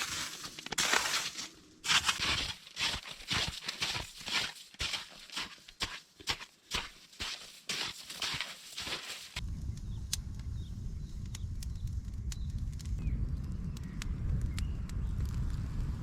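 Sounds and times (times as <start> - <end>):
crunching scraping strokes: 0.0 - 9.4.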